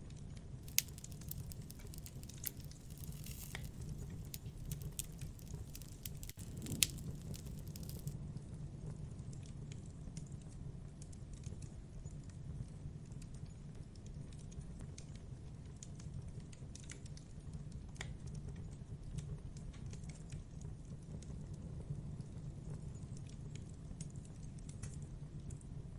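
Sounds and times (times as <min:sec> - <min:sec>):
low rumble of burning: 0:00.6 - 0:08.2
wood fire crackling and popping: 0:00.6 - 0:08.2.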